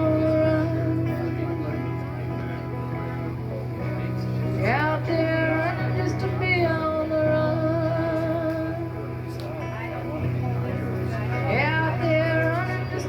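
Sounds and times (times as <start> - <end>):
slow folk-country instrumental: 0.0 - 13.0.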